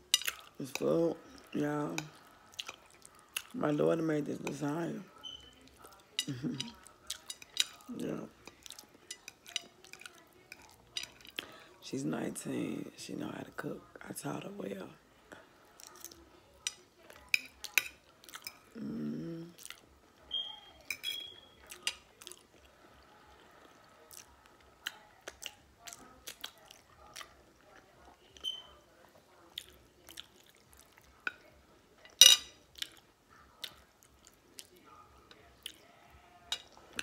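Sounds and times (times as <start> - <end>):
person chewing: 0.1 - 0.6, 1.3 - 3.6, 5.7 - 11.5, 17.0 - 19.9, 21.0 - 28.5, 29.4 - 31.2, 32.0 - 34.8
fork clattering against plate: 5.2 - 11.4, 16.6 - 18.6, 20.3 - 22.0, 32.0 - 32.6.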